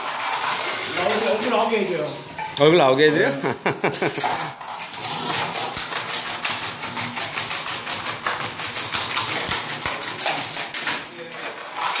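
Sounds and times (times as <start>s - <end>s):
floor-removal machine chattering: 0.0s - 12.0s.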